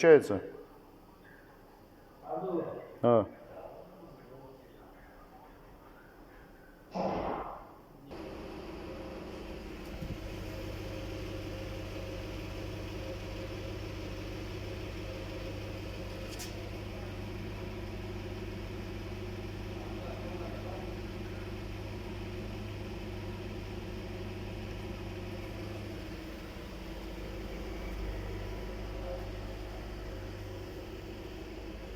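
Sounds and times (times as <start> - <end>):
air compressor electric hum: 6.9 - 31.9.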